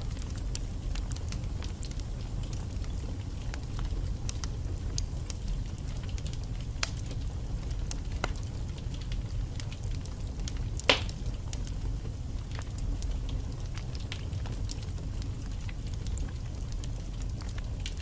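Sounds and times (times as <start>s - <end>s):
low rumble of fire flames: 0.0s - 18.0s
logs crackling: 10.8s - 11.2s
loud pop of burning log: 10.8s - 11.2s.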